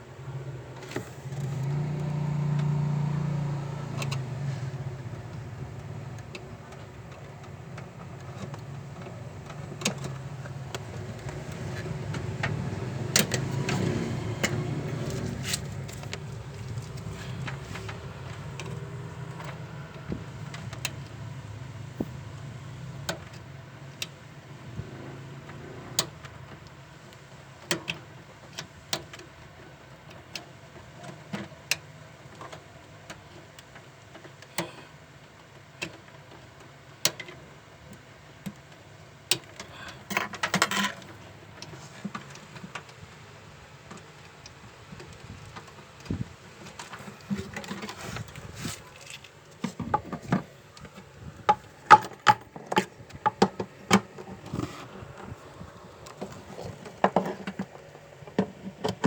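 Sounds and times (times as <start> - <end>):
small computer parts clattering: 38.4 - 43.3.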